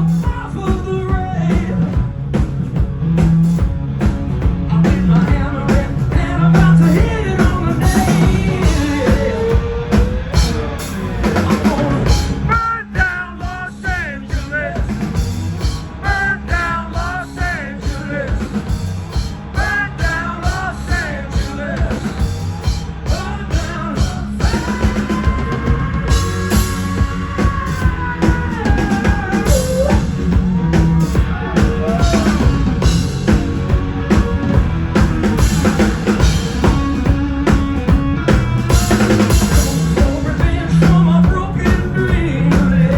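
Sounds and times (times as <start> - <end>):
drum kit beat: 0.0 - 42.9
rock band playing: 0.0 - 42.9
person singing: 4.7 - 14.9, 23.1 - 33.0, 38.7 - 42.9.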